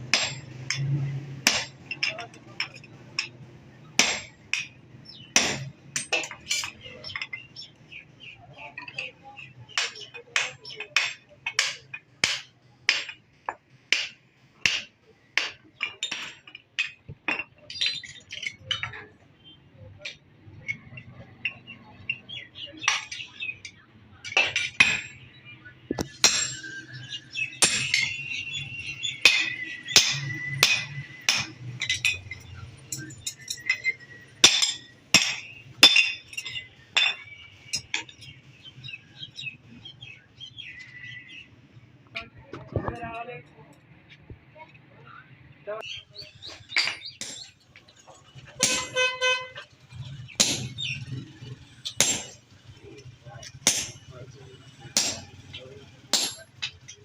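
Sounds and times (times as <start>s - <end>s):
hammer striking metal on anvil: 0.1s - 3.3s, 4.0s - 4.8s, 5.4s - 6.8s, 26.0s - 28.2s, 29.1s - 38.1s, 48.6s - 49.1s, 50.4s - 51.1s, 51.8s - 52.4s, 53.4s - 54.1s, 55.0s - 55.5s, 56.1s - 56.9s
birds chirping: 1.5s - 57.0s.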